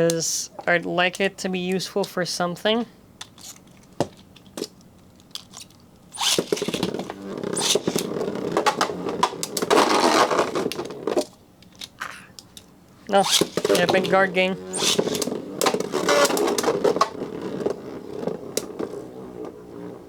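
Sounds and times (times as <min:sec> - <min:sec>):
spinning tops clattering: 0:06.1 - 0:10.9, 0:13.1 - 0:18.9.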